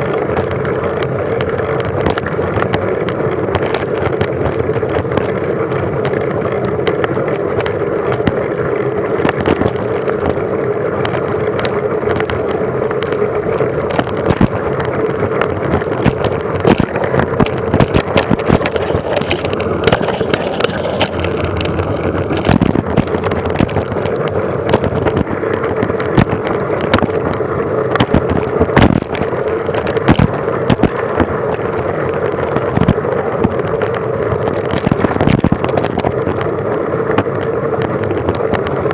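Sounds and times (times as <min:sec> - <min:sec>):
tyre and wind rushing: 0:13.6 - 0:38.9
bike knocks and rattles: 0:13.8 - 0:38.9.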